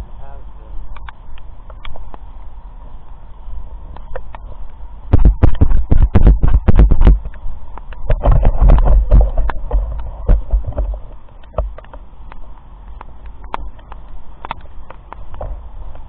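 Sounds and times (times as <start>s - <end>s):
wind on phone microphone: 2.8s - 16.0s
sharp taps and knocks: 5.1s - 16.0s.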